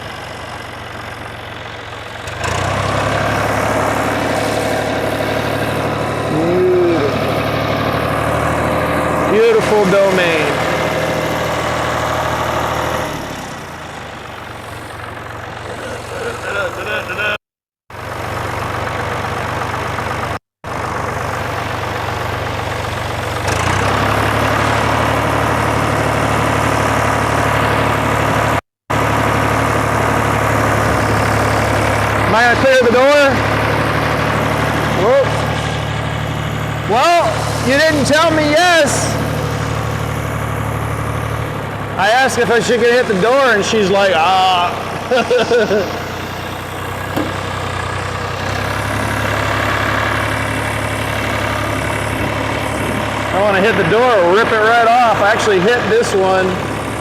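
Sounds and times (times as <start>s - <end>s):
diesel tractor engine: 0.0s - 57.0s.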